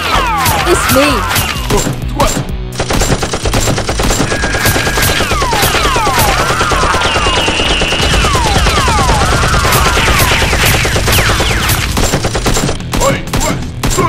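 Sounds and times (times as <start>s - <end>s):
rapid automatic gunfire: 2.8s - 13.2s.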